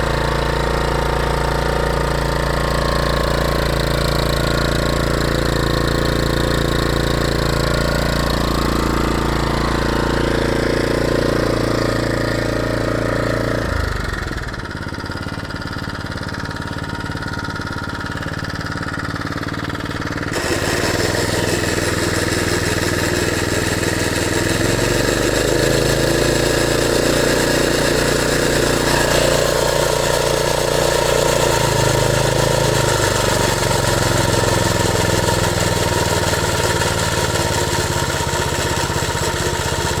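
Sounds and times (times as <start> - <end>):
lawn mower engine running: 0.0 - 40.0.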